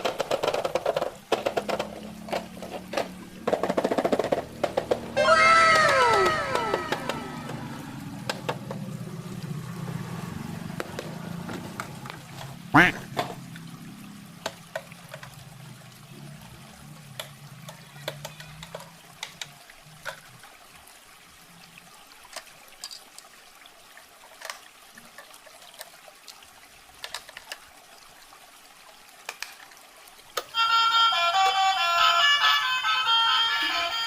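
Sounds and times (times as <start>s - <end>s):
packaging clicks taps and rustles: 0.0s - 5.1s, 17.1s - 20.4s, 27.0s - 27.7s
low hum: 4.4s - 14.3s.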